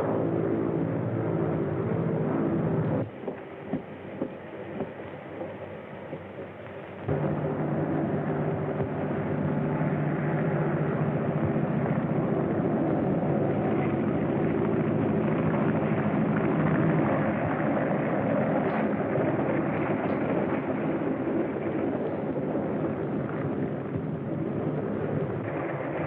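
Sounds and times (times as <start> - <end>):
large vehicle running rumble: 7.1 - 26.0.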